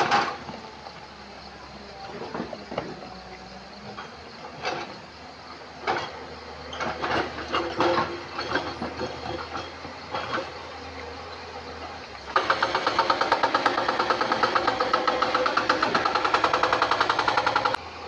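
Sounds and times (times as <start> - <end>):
excavator engine running: 0.0 - 18.0.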